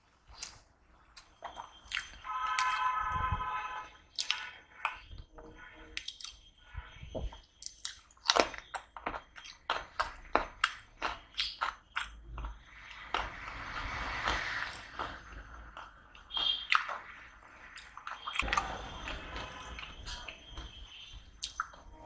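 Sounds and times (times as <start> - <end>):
crunching bites: 7.6 - 13.3.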